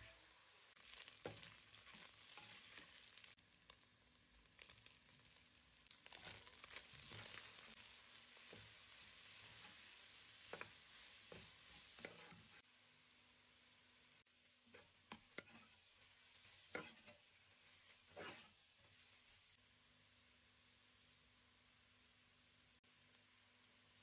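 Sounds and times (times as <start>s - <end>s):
meat sizzling in hot oil: 0.0s - 19.6s
spatula scraping a pot: 6.2s - 7.8s, 9.4s - 12.6s, 14.7s - 19.2s.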